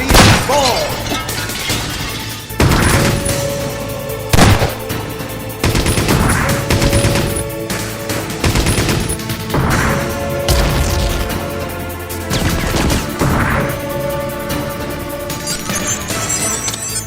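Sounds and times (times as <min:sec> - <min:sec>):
machine-gun fire: 0:00.0 - 0:00.6, 0:02.6 - 0:05.0, 0:05.6 - 0:11.6, 0:12.3 - 0:13.6
heavy hits: 0:00.0 - 0:15.2
action soundtrack music: 0:00.0 - 0:17.0.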